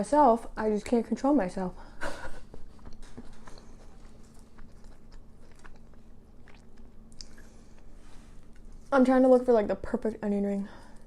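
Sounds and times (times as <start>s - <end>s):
person chewing crispy food: 2.7s - 8.9s.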